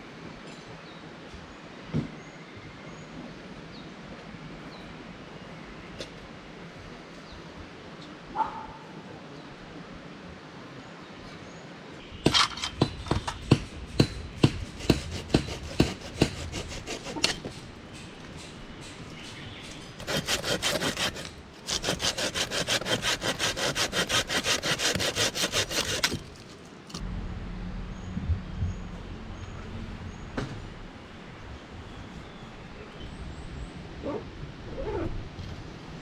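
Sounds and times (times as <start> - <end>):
hand saw cutting wood: 12.3 - 18.1, 19.1 - 27.0.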